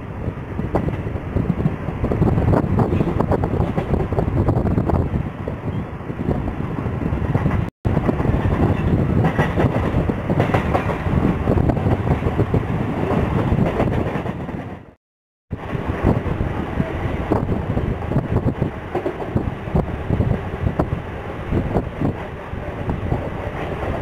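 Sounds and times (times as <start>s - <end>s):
train wheels rumbling: 0.1s - 24.0s
rapid rail clatter: 7.3s - 14.9s.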